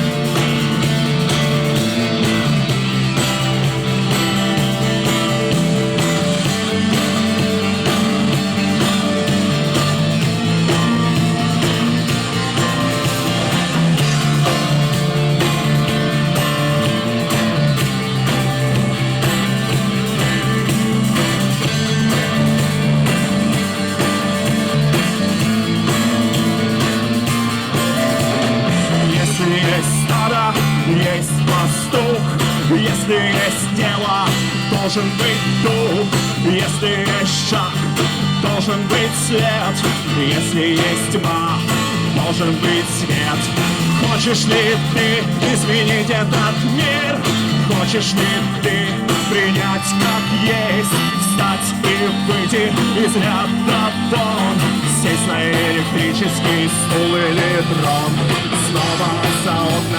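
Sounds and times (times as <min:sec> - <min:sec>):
bass line: 0:00.0 - 0:59.9
rock guitar: 0:00.0 - 0:59.9
person singing: 0:19.9 - 0:59.9.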